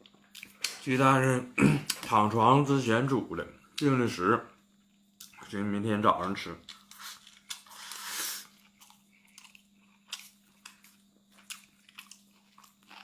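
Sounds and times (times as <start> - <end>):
faint steady hum: 0.0 - 13.0
eating crunches: 6.2 - 13.0.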